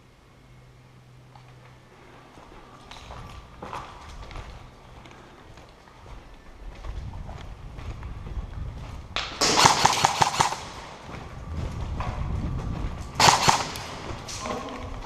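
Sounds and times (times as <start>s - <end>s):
footsteps: 1.3s - 15.0s
airsoft gunfire bursts: 9.4s - 11.0s, 13.2s - 14.4s.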